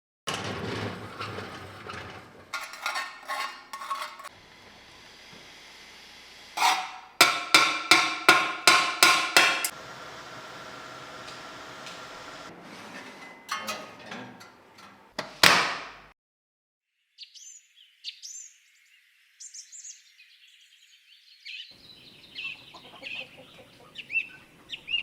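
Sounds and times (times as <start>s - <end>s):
hammer striking metal: 6.6s - 9.8s.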